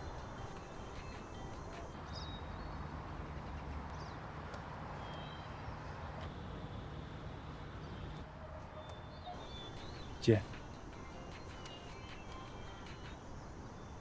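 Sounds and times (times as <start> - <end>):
bird chirps: 0.0 - 2.4, 9.3 - 14.0.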